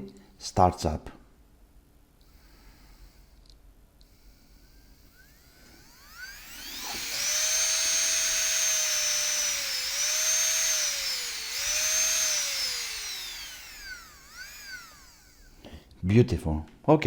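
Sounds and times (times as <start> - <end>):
nail grinder motor whining: 2.2 - 15.8.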